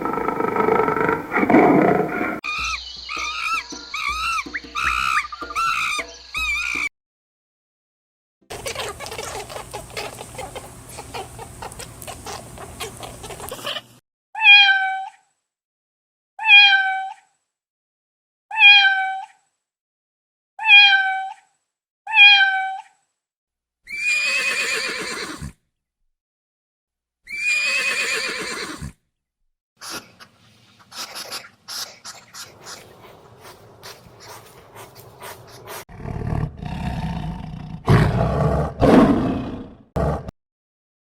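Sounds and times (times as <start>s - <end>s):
crackly noise with clicks: 8.6s - 13.6s
cat meowing: 14.4s - 15.2s, 16.4s - 17.2s, 18.5s - 19.3s, 20.6s - 21.4s, 22.1s - 22.8s.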